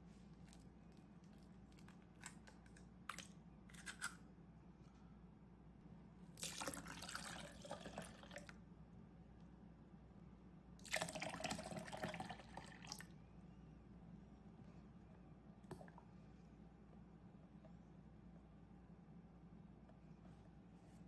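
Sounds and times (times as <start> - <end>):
milk pouring into a blender jar: 6.4 - 8.6, 10.8 - 13.1.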